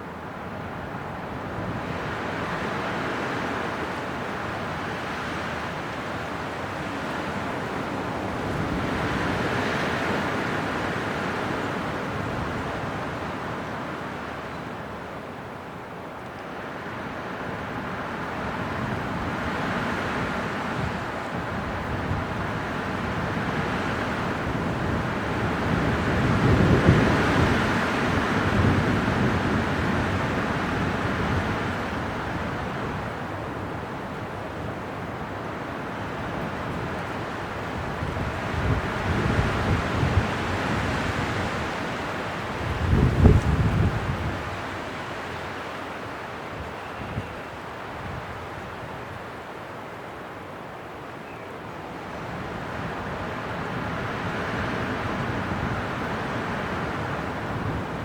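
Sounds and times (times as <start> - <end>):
gusting wind: 0.0 - 58.0.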